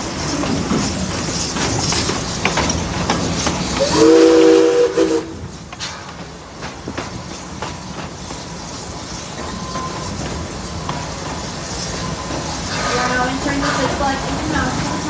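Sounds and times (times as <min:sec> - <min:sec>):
wheels clicking over rails: 0:00.0 - 0:04.0
train running noise: 0:00.0 - 0:15.0
steam train whistle: 0:03.8 - 0:05.5.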